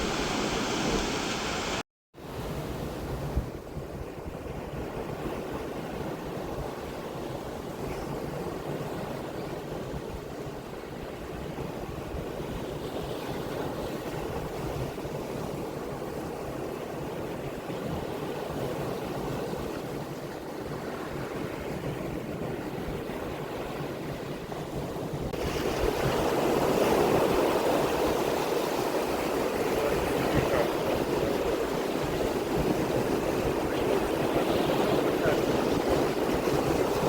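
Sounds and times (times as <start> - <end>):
sea waves rushing: 0.0 - 1.8, 23.1 - 37.0
wind on microphone: 0.0 - 37.0.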